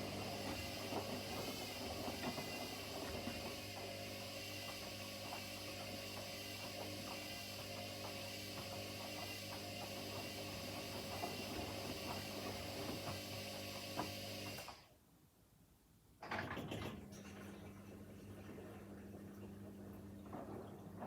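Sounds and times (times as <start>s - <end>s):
washing machine motor hum: 0.0s - 14.8s, 16.2s - 21.0s.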